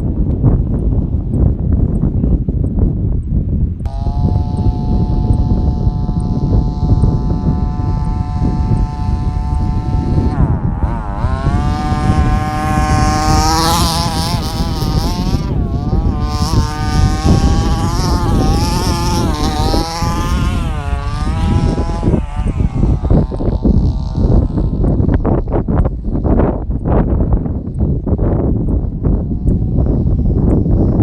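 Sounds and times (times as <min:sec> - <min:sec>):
rc truck motor whining: 0:03.9 - 0:26.4.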